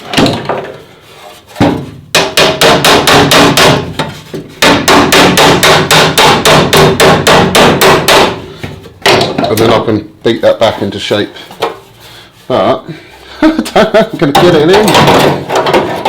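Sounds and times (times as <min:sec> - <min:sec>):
hammer blows on sheet metal: 0:01.6 - 0:09.4.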